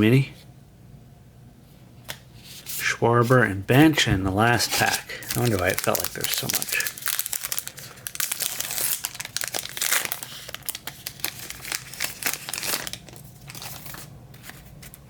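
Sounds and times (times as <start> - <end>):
wrapper tearing and crinkling: 4.6 - 15.0.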